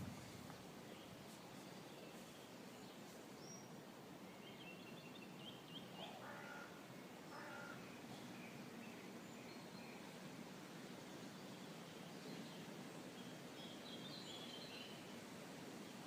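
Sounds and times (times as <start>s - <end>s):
crow cawing: 6.0s - 7.8s.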